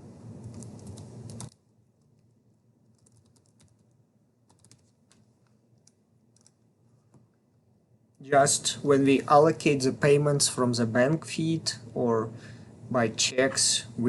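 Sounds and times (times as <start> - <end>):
low steady hiss: 0.0 - 14.0
keyboard typing clicks: 0.4 - 2.3, 2.9 - 3.9, 4.5 - 6.6.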